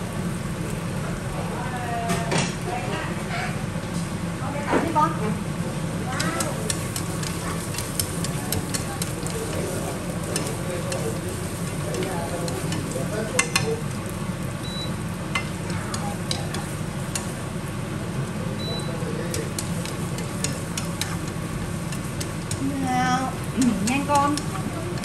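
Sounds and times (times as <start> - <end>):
sizzling in hot oil: 0.0 - 3.8, 5.4 - 25.0
chopsticks clicking against pan: 6.1 - 14.1, 15.3 - 17.5, 18.6 - 22.7, 23.4 - 25.0.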